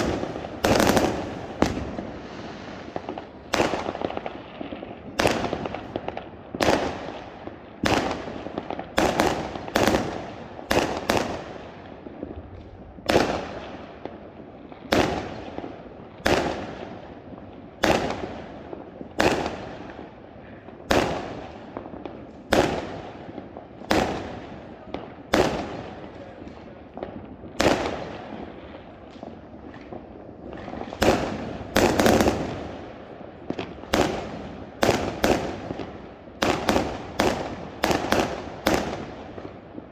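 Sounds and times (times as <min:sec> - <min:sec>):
fireworks banging: 0:00.0 - 0:13.8, 0:20.8 - 0:39.9
background crackle and rumble: 0:00.0 - 0:39.9.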